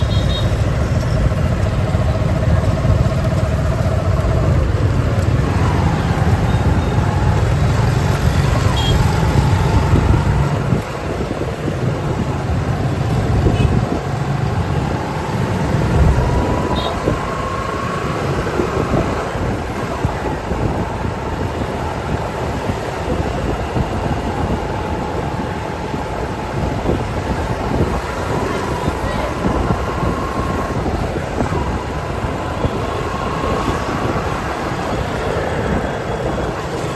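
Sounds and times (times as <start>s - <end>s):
motorbike engine: 0.0s - 36.9s
traffic engines rumbling: 0.0s - 36.9s.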